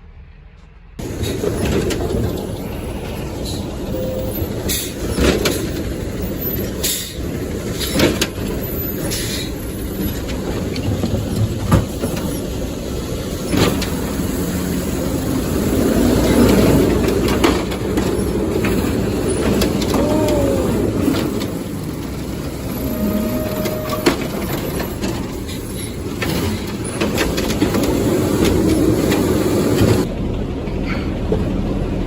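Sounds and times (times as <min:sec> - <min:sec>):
garbage truck engine running: 0:01.0 - 0:32.0
short squeal: 0:22.5 - 0:26.0.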